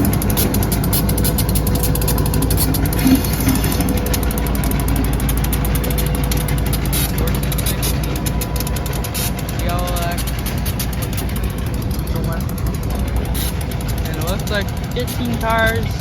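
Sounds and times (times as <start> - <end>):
rapid ticking clatter: 0.0 - 16.0
vehicle engine rumble: 0.0 - 16.0.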